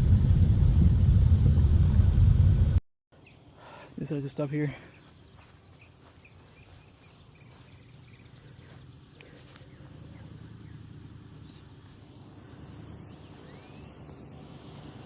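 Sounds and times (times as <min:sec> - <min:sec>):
low steady rumble: 0:00.0 - 0:02.8, 0:06.8 - 0:15.0.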